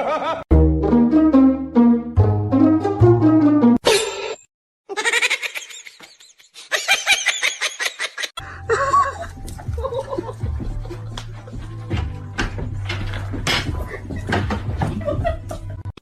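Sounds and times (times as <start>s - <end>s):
person laughing: 4.9s - 11.2s, 13.8s - 15.8s.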